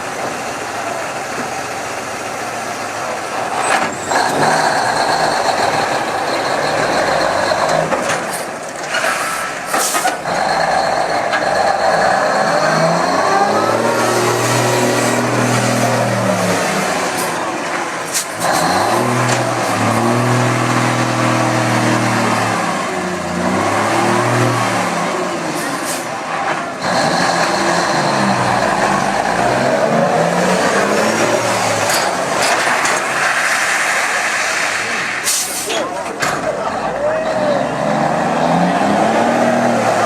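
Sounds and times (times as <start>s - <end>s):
truck diesel engine revving: 0.0s - 40.0s.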